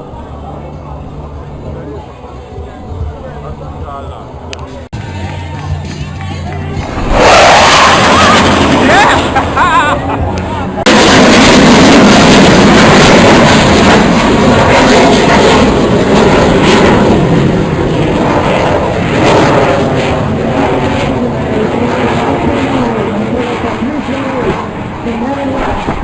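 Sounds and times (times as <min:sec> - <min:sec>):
aircraft flying past low: 0:06.4 - 0:26.0.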